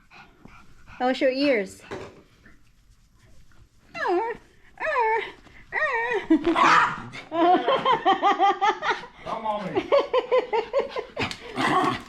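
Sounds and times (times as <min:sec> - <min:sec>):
dog growl-like call: 0:11.5 - 0:12.0.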